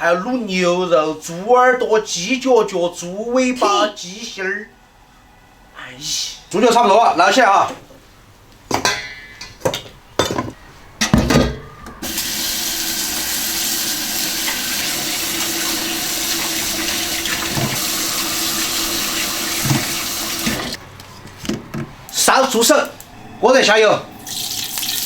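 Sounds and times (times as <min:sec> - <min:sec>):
kitchenware clattering: 0:08.7 - 0:12.0
tap running into sink: 0:12.0 - 0:20.8.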